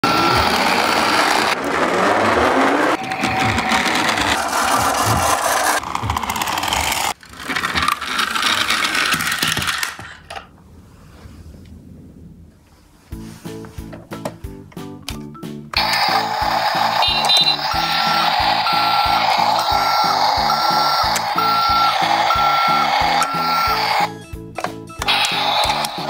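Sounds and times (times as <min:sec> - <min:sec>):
toy trucks rolling on wooden table: 0:00.1 - 0:10.4, 0:15.8 - 0:24.1, 0:25.0 - 0:26.0.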